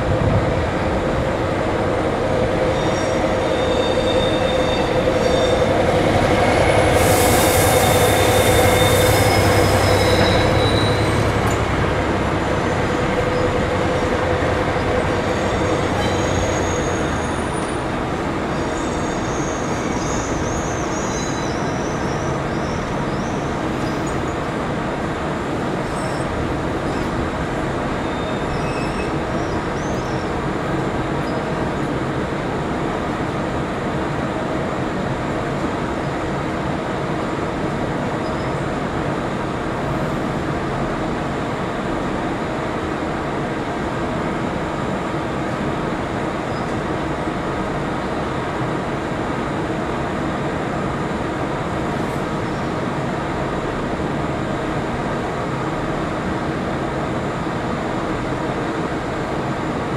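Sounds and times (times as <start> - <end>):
train rumbling: 0.0 - 59.9
high wheel squeals: 2.2 - 17.8, 18.5 - 24.2, 28.0 - 30.2.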